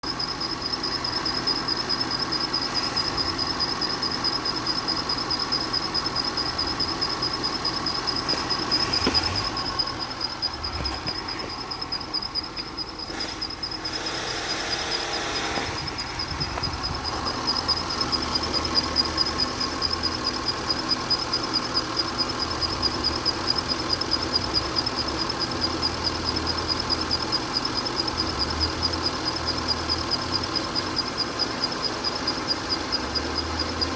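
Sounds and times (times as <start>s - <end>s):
car engine idling: 0.0s - 33.9s
high-pitched whine: 0.1s - 21.6s.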